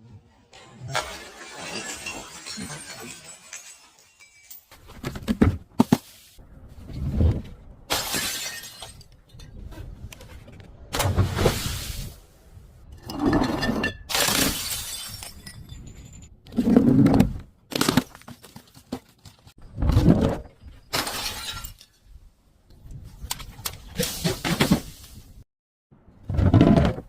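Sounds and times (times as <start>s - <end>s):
glass bottles smashing: 0.8s - 5.1s, 7.9s - 9.1s, 13.4s - 16.4s, 20.8s - 22.1s
glass shards crackling: 1.2s - 4.7s.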